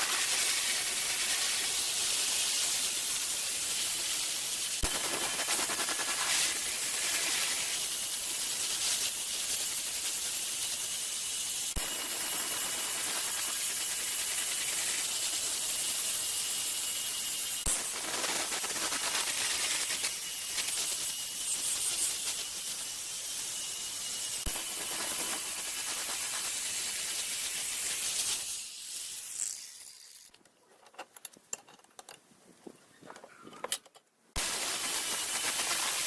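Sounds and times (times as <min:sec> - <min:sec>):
hand abrasive rasping on metal: 0:24.2 - 0:29.3, 0:34.4 - 0:36.0.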